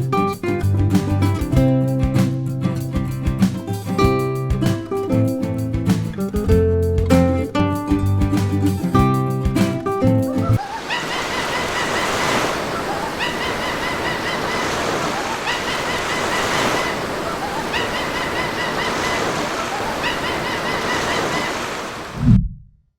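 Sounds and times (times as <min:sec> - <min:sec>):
sea surf washing in: 0:09.6 - 0:22.4
short bird calls: 0:10.5 - 0:22.0.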